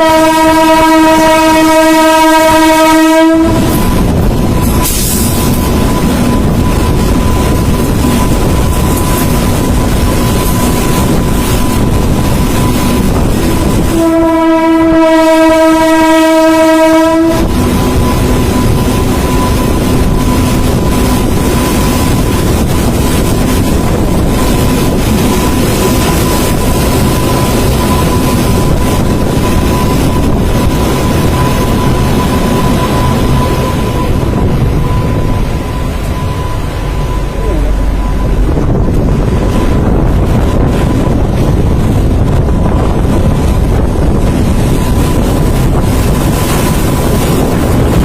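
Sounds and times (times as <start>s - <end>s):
train horn blast: 0.0s - 3.9s, 13.8s - 18.6s
train wheels rumbling on rails: 0.0s - 48.0s.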